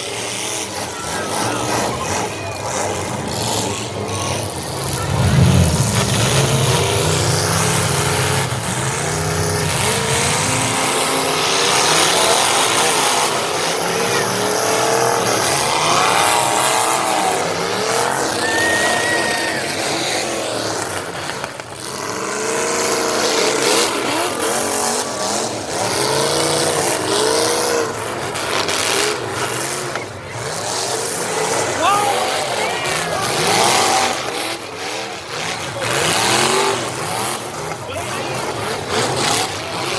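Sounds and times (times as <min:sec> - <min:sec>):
car engines revving: 0:00.0 - 0:39.9
bangs: 0:04.5 - 0:10.5
tyre squeal: 0:18.3 - 0:19.9.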